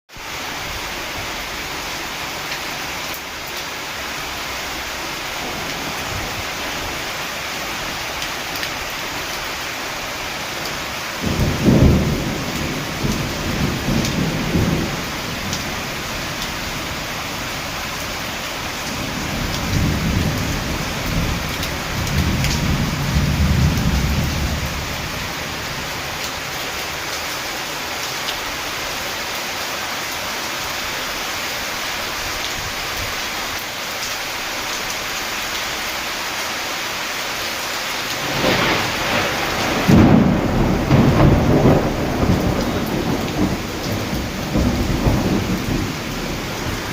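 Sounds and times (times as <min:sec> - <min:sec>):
rain falling: 0:00.1 - 0:46.9
thunder rumbling: 0:10.7 - 0:26.6, 0:38.1 - 0:46.9.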